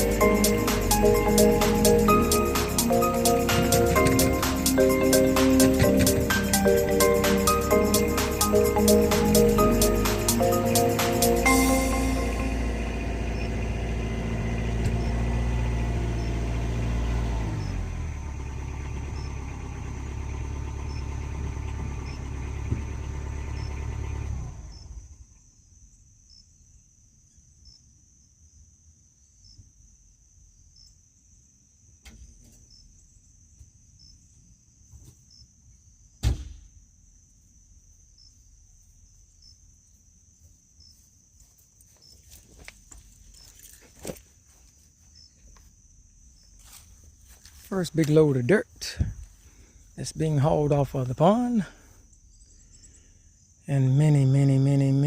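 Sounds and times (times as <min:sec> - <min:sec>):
vehicle engine running: 0:00.0 - 0:26.0, 0:36.8 - 0:55.0
sharp knock: 0:36.2 - 0:36.8.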